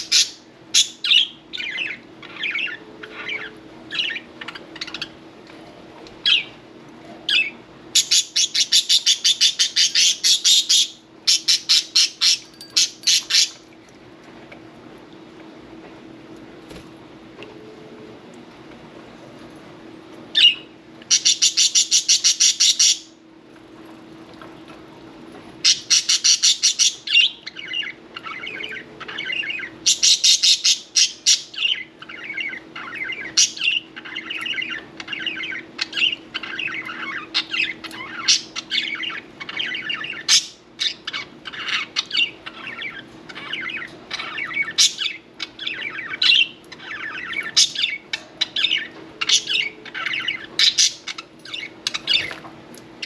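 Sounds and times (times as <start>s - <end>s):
budgerigars chirping: 25.7s - 52.3s.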